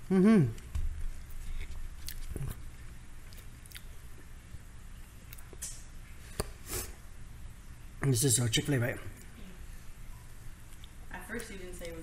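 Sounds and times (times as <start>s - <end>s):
chewing crispy chicken: 1.2s - 4.3s
wet mouth clicks: 1.3s - 2.6s, 3.3s - 3.9s.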